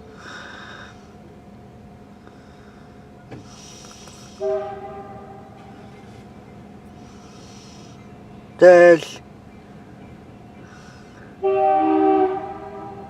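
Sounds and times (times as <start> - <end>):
faint train rumble: 0.0 - 13.0
locomotive air horn blast: 4.3 - 6.2, 11.3 - 13.0.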